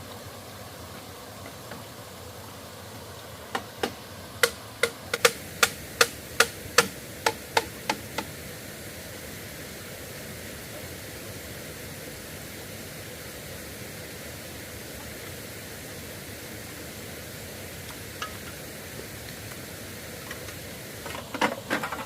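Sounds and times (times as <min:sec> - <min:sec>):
background hiss: 0:00.0 - 0:22.0
sharp knocks: 0:03.6 - 0:08.3.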